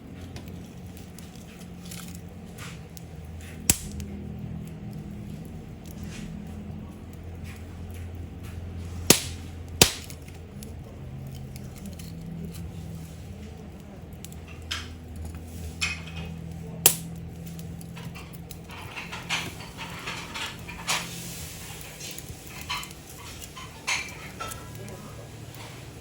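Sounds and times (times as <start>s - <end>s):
low steady hum: 0.0s - 26.0s
sharp cracks or knocks: 3.7s - 4.1s, 9.1s - 10.4s, 16.9s - 17.2s.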